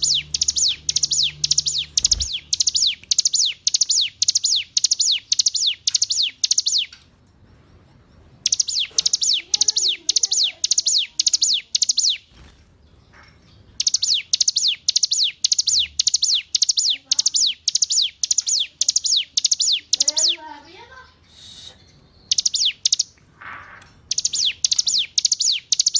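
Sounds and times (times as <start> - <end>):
bird singing high falling notes: 0.0 - 6.9.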